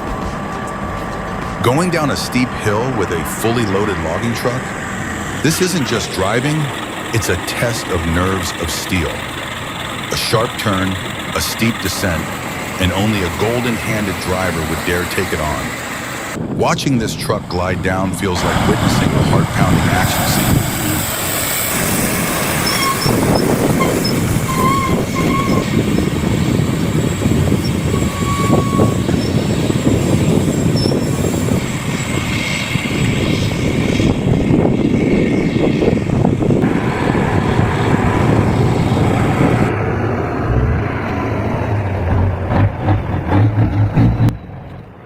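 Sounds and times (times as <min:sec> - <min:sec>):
truck engine rumbling: 0:00.0 - 0:45.0
high-pitched brake squeals: 0:21.5 - 0:33.6.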